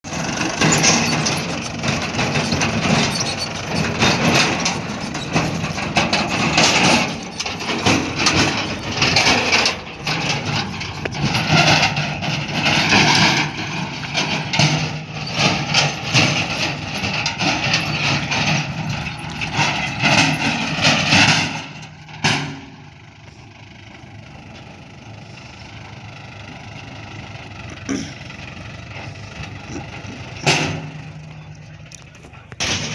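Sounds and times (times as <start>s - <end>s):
clanking and knocking: 0.0s - 23.4s, 24.1s - 32.9s
diesel engine droning: 0.0s - 32.9s.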